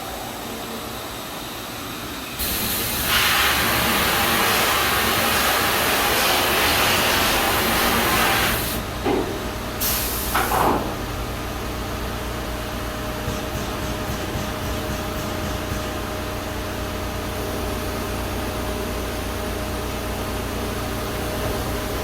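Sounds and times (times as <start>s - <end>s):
grinding machine hum: 8.8s - 9.8s.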